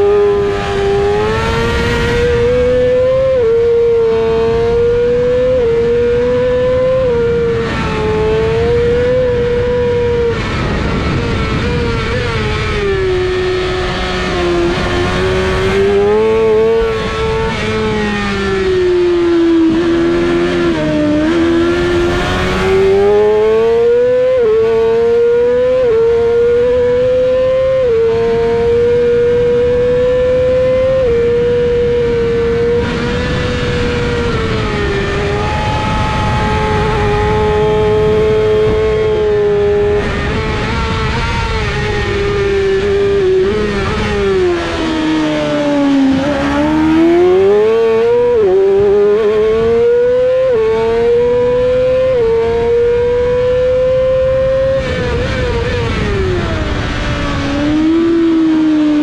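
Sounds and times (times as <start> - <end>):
motorcycle engine revving high: 0.0 - 59.0
wind rushing: 7.4 - 18.5, 31.8 - 49.8.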